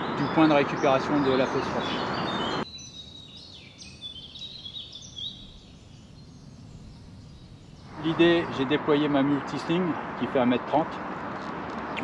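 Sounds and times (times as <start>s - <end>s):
birds chirping and singing: 0.0s - 8.7s
faint outdoor background: 0.0s - 12.0s.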